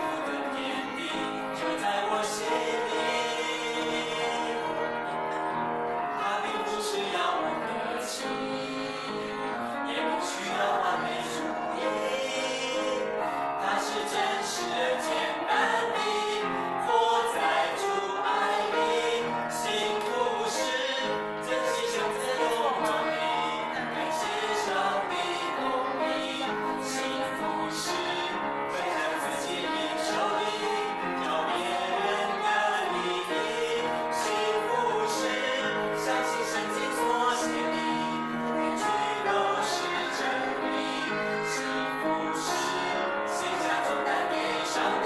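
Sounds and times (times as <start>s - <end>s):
song with singing and beat: 6.1s - 41.8s.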